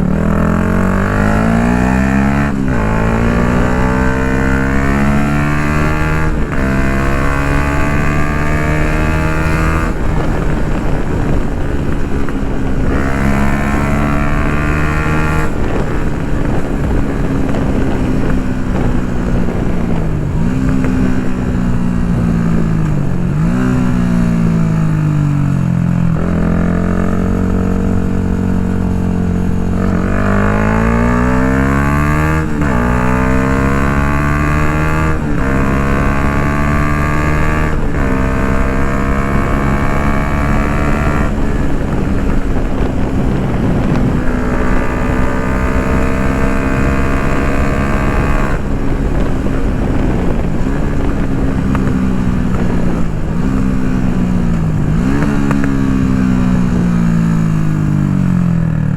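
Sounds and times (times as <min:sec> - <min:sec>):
motorcycle engine accelerating: 0:00.0 - 0:58.9.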